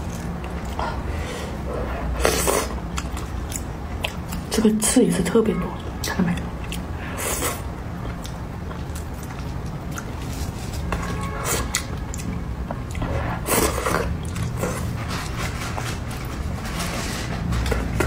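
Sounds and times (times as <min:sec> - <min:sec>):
low steady hum: 0:00.0 - 0:18.0
person chewing fish: 0:02.2 - 0:04.5, 0:06.6 - 0:10.6, 0:11.6 - 0:14.8.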